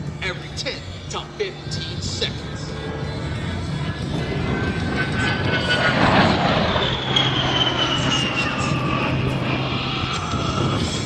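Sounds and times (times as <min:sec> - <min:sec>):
jet engine roar passing: 0:00.8 - 0:11.0
high whine falling in pitch: 0:04.4 - 0:11.0.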